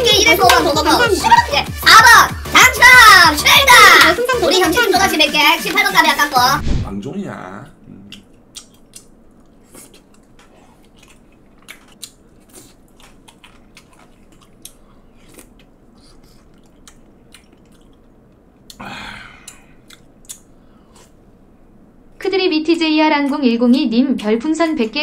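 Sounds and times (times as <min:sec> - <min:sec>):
person chewing and smacking food: 0:08.0 - 0:18.8, 0:19.4 - 0:21.2
small wet mouth clicks: 0:08.1 - 0:09.2, 0:19.4 - 0:21.2.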